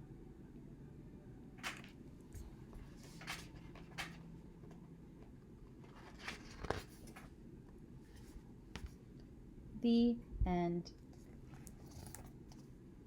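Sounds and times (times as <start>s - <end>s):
paper pages rustling: 1.6s - 4.3s, 5.8s - 7.3s, 11.2s - 12.7s.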